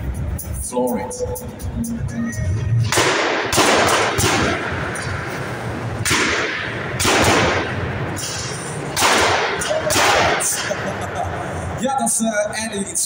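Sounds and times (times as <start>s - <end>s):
exhaust bangs: 2.8s - 11.8s.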